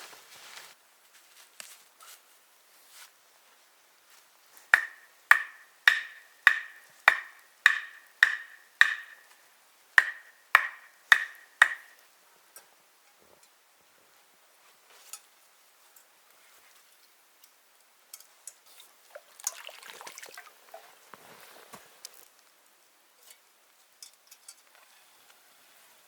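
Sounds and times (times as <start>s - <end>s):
ringing knocks on wood: 4.8s - 9.3s, 10.0s - 12.0s.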